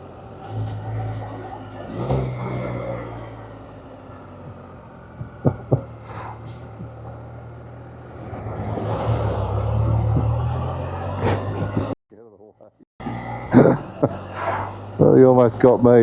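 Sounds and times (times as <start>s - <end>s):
motorcycle engine running: 0.0s - 12.0s
wind and road noise: 0.0s - 12.0s, 13.0s - 16.0s.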